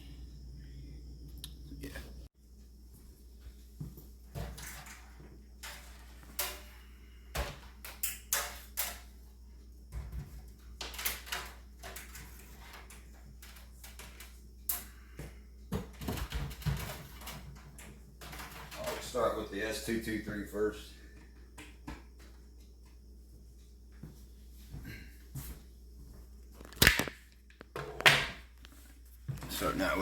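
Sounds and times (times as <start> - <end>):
faint low hum: 0.0 - 26.6
objects knocking and clicking: 15.7 - 19.1.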